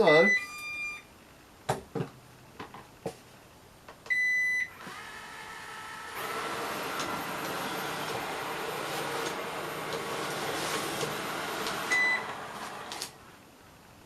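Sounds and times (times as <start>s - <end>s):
robot vacuum beep: 0.0s - 1.0s, 4.1s - 4.8s, 11.8s - 12.4s
robot vacuum motors running: 4.8s - 13.2s.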